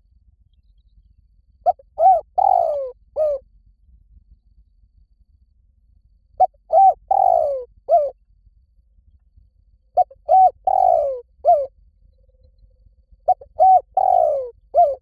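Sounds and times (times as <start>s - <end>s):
dove cooing: 1.7s - 3.4s, 6.4s - 8.2s, 10.0s - 11.7s, 13.2s - 15.0s.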